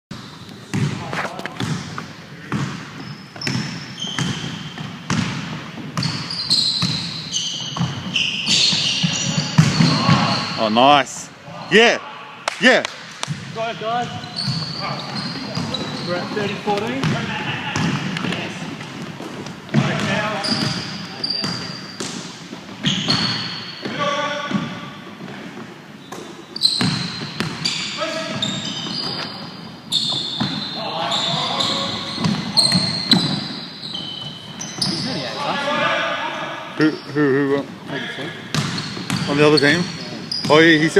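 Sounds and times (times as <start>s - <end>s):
basketball bouncing: 0.7s - 10.4s, 13.2s - 23.4s, 26.7s - 30.7s, 31.6s - 35.0s, 38.5s - 40.6s
shoe squeaks on floor: 2.9s - 10.9s, 13.8s - 25.0s, 26.0s - 35.9s, 36.8s - 40.9s
players' voices: 8.5s - 23.0s, 30.4s - 33.6s, 34.2s - 40.9s.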